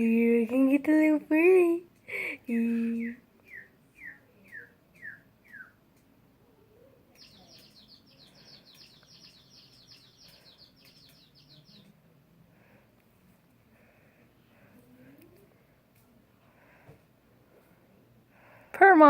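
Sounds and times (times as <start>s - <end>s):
faint bird chirping: 2.0s - 16.8s.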